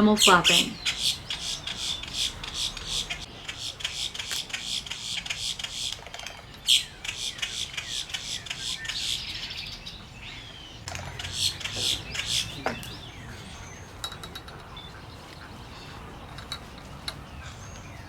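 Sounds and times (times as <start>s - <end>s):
wading birds chirping and squawking: 0.0s - 18.0s.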